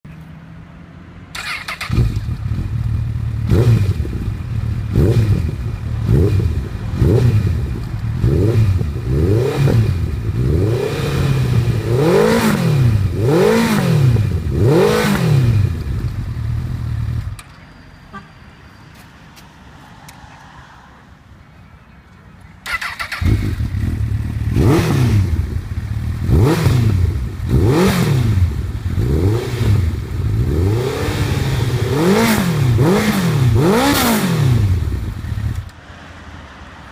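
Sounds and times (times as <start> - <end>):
motorcycle engine revving in blips: 1.3 - 17.5, 22.7 - 35.7.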